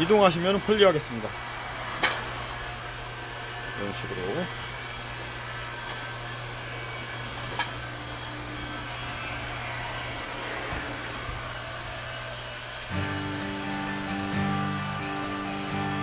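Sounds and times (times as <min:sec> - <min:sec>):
electric motor whirring hum: 0:00.0 - 0:16.0
background music: 0:12.9 - 0:16.0.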